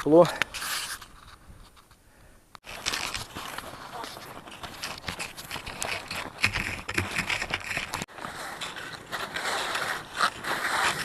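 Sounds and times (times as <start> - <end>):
skis swishing over snow: 2.7 - 11.0.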